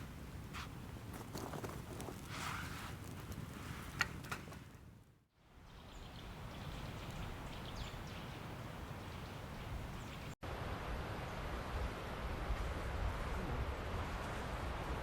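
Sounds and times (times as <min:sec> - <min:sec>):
outdoor hush: 0:00.0 - 0:10.4.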